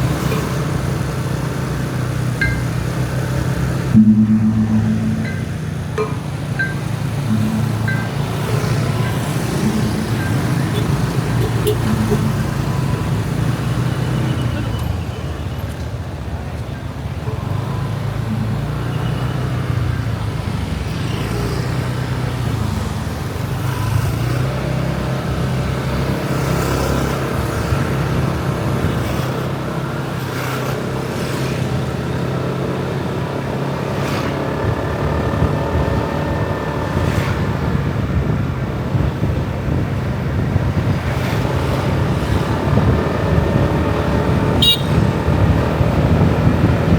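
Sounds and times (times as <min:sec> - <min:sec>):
traffic: 0:00.0 - 0:46.9
motorbike engine: 0:40.6 - 0:46.9.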